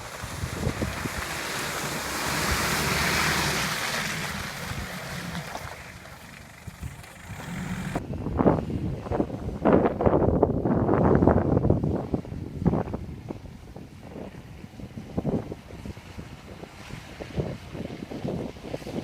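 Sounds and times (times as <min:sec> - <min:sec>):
vehicle splashing through mud: 0:00.0 - 0:08.0
wind buffeting microphone: 0:00.0 - 0:19.0.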